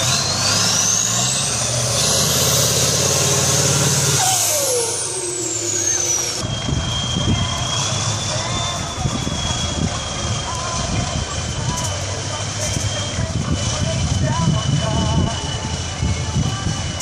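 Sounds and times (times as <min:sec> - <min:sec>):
truck engine revving: 0:00.0 - 0:17.0
high whistle: 0:04.0 - 0:10.8.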